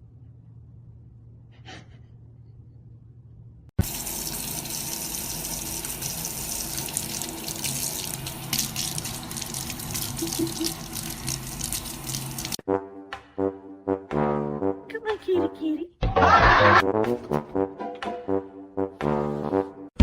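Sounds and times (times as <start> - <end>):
tap water running into sink: 3.8 - 12.6.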